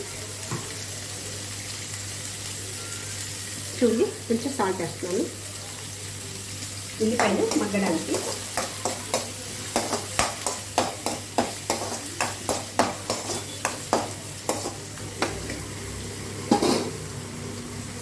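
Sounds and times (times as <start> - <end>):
onions sizzling in oil: 0.0 - 18.0
utensil knocking against pan: 7.2 - 15.6.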